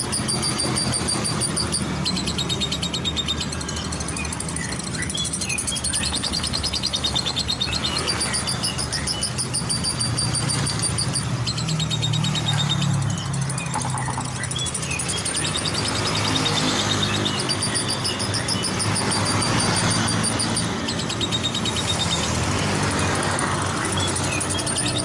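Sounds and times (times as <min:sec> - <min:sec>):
bird chattering trills: 0:00.0 - 0:25.0
road traffic rumble: 0:00.0 - 0:25.0.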